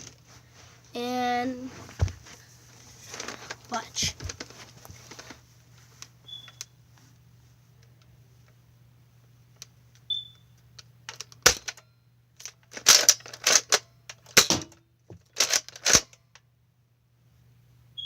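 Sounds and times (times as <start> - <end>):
toy gun plastic clacks: 12.4 - 14.7, 15.3 - 16.2.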